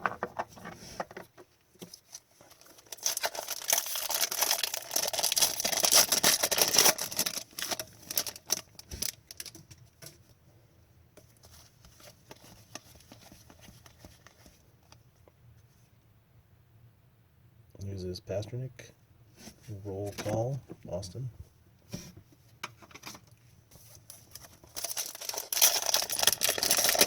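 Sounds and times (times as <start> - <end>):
wrapper tearing and crinkling: 2.0 - 9.6, 24.3 - 27.0.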